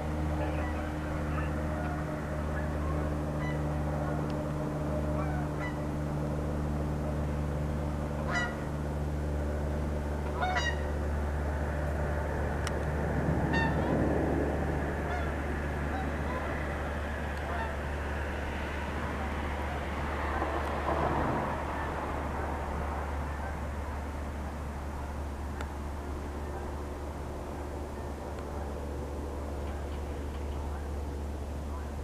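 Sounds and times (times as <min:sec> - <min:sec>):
birds honking: 0:00.0 - 0:04.3, 0:04.9 - 0:06.0, 0:08.2 - 0:08.8, 0:10.2 - 0:11.0, 0:13.5 - 0:13.9, 0:15.0 - 0:16.8, 0:17.4 - 0:18.0
steady low hum: 0:00.0 - 0:32.0.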